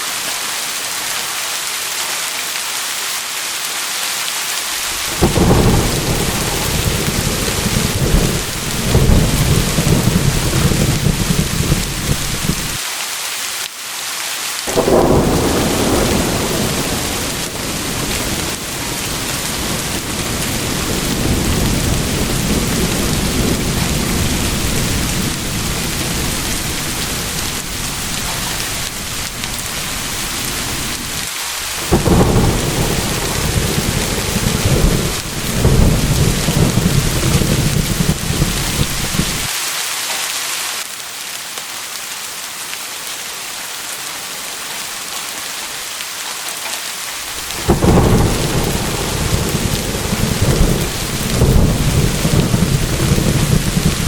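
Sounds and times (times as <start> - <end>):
heavy rain: 0.0 - 54.0
thunder rumbling: 4.8 - 12.8, 14.7 - 39.5, 47.2 - 54.0.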